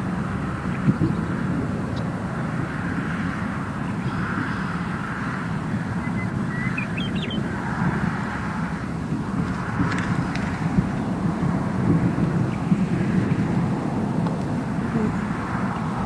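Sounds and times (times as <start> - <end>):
distant hail roar: 0.0 - 16.0
faint bird chirps: 6.0 - 7.4.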